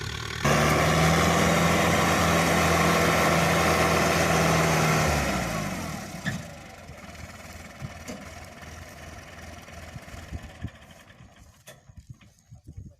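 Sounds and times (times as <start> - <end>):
tractor diesel engine running: 0.0 - 12.9
engine knocks: 5.6 - 12.3.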